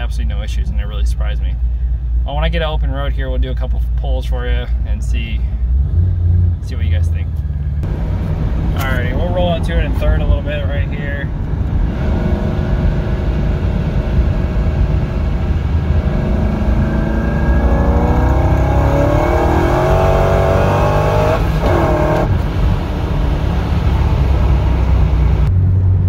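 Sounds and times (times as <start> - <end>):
supercharged car engine accelerating: 11.7 - 25.5.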